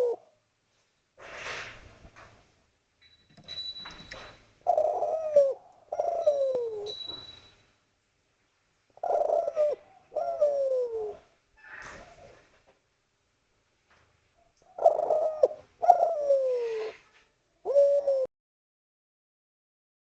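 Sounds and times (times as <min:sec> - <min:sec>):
dove cooing: 0:00.0 - 0:00.3, 0:04.6 - 0:07.2, 0:09.0 - 0:12.5, 0:14.6 - 0:18.3.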